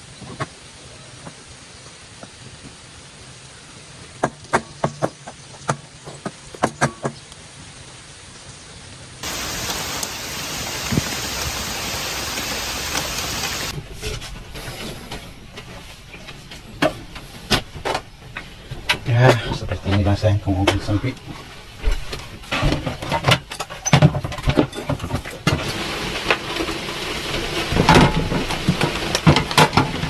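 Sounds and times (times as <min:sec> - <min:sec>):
heavy rain: 0:00.0 - 0:13.8, 0:24.7 - 0:30.0
quieter rain: 0:00.0 - 0:30.0.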